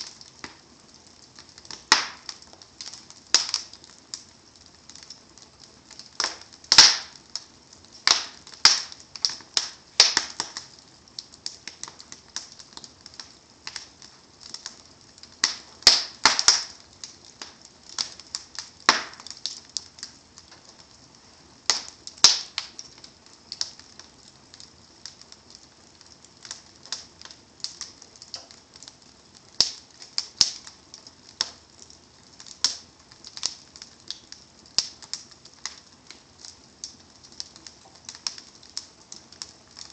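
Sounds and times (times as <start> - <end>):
wood fire crackling: 0.0 - 39.9
sharp loud pops of fire: 1.6 - 3.7, 6.1 - 7.4, 8.0 - 10.8, 15.4 - 16.8, 17.4 - 19.6, 21.7 - 22.9.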